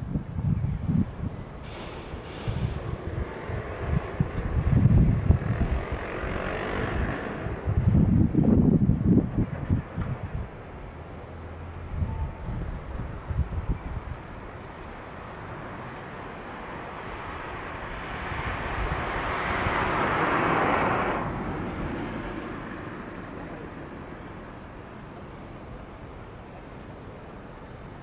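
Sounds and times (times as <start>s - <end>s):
vehicle passing by: 1.7s - 10.5s, 15.2s - 25.0s.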